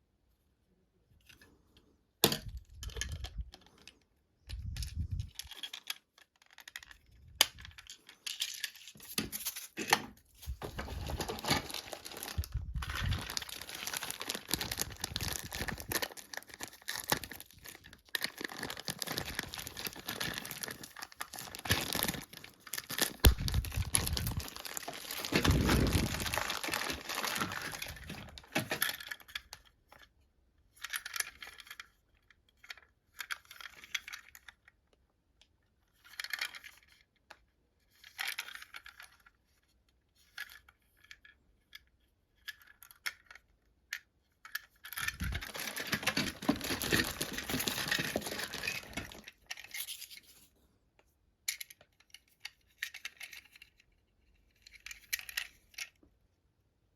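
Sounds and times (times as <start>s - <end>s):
small plastic parts clattering: 2.2s - 50.6s, 51.4s - 56.1s
plastic packaging crinkling: 10.4s - 29.3s, 44.9s - 50.3s.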